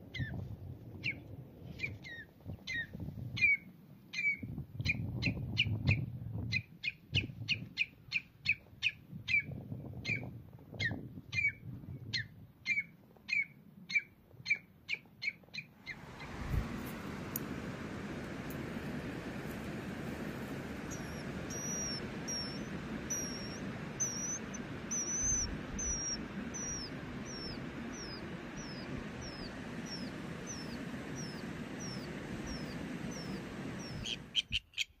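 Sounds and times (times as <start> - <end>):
steady hiss: 15.9 - 34.4
bird chirping: 20.9 - 35.0.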